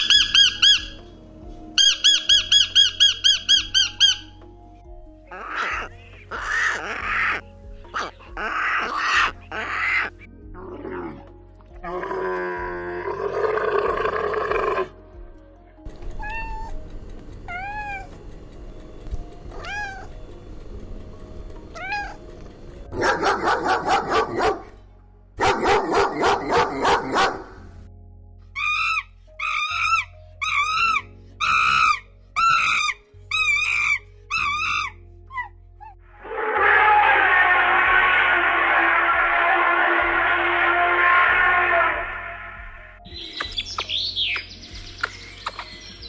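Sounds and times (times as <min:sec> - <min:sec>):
rapid yapping: 0:00.0 - 0:01.0, 0:01.8 - 0:04.3, 0:05.3 - 0:10.3, 0:16.1 - 0:16.8, 0:17.4 - 0:18.3, 0:19.5 - 0:20.2, 0:21.7 - 0:22.3, 0:22.9 - 0:24.7, 0:25.4 - 0:27.7, 0:28.6 - 0:42.8
short arched animal calls: 0:00.0 - 0:01.0, 0:01.8 - 0:04.3, 0:05.3 - 0:10.3
faint rising squeaks: 0:00.0 - 0:04.4, 0:15.9 - 0:22.9
camel growling: 0:05.3 - 0:15.0, 0:36.2 - 0:42.6.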